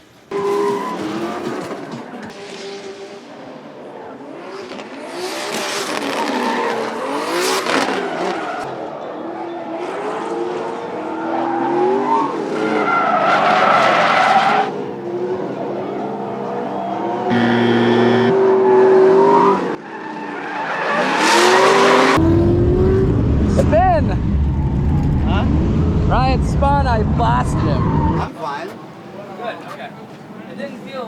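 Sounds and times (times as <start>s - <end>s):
tires squealing: 0.3s - 2.4s, 5.3s - 8.8s, 10.8s - 14.8s, 15.4s - 22.2s, 27.4s - 28.8s
engines revving: 14.6s - 19.8s.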